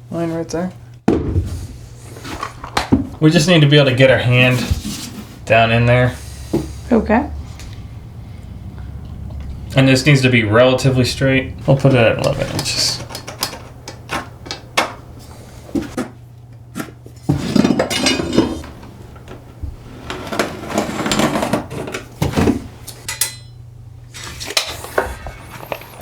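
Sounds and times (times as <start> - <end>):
scraping or rubbing: 11.5 - 14.4.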